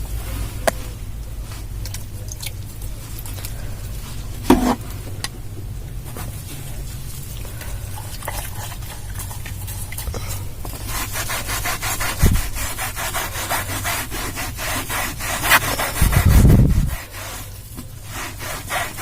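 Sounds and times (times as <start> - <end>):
towel scrubbing fabric seat: 10.8 - 19.0.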